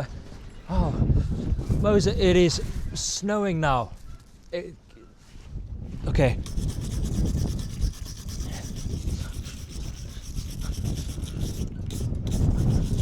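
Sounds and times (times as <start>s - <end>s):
wind buffeting microphone: 0.0s - 4.3s, 5.4s - 13.0s
scratchy rubbing noise: 6.4s - 13.0s.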